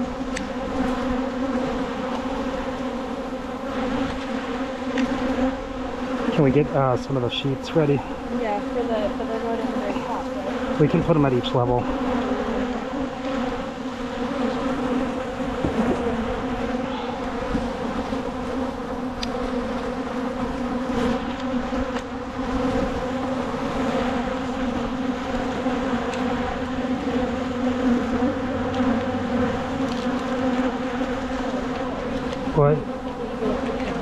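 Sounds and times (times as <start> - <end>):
honeybees buzzing: 0.0 - 34.0.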